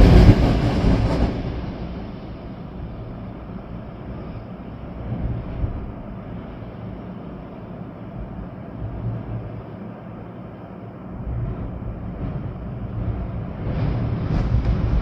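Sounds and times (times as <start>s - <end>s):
rain: 0.0s - 15.0s
storm wind through trees: 0.0s - 15.0s.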